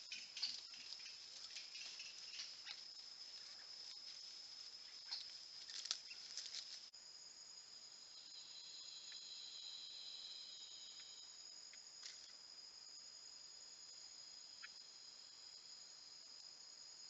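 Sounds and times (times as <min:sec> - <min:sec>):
soft rustles and clicks: 0:00.0 - 0:06.9
high-pitched insect chorus: 0:00.0 - 0:17.0
insect drone of steady tones: 0:00.0 - 0:17.0.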